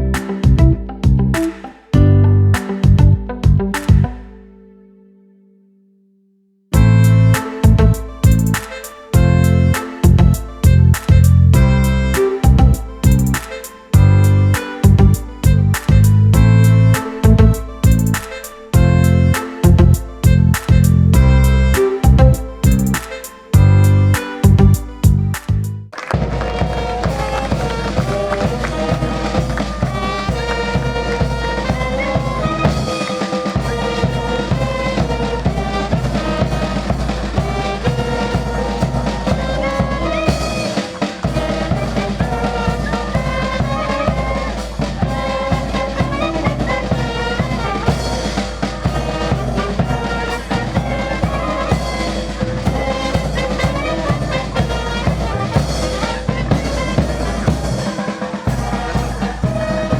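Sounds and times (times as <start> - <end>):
heavy bass line: 0.0 - 4.2, 6.8 - 8.6, 9.2 - 13.4, 14.0 - 23.0, 23.6 - 25.9
instrumental music with drum beat: 0.0 - 4.4, 6.8 - 59.9.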